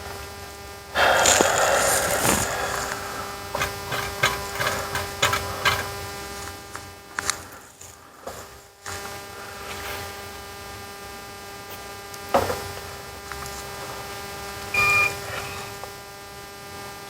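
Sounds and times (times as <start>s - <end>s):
electrical hum: 0.0s - 17.0s
hiss: 1.0s - 5.8s, 15.1s - 15.9s.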